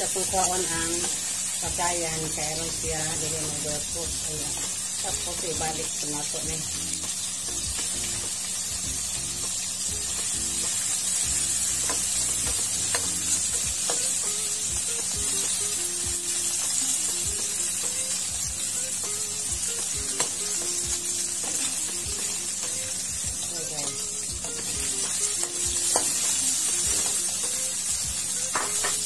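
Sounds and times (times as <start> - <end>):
background music: 0.0 - 29.0
food sizzling in hot oil: 0.0 - 29.0.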